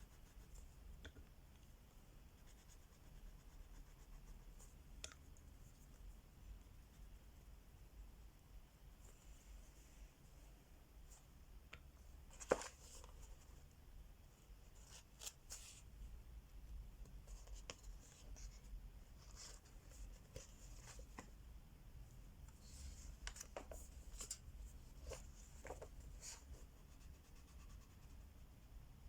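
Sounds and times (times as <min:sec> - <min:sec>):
soft clicks and taps: 0:11.6 - 0:13.1.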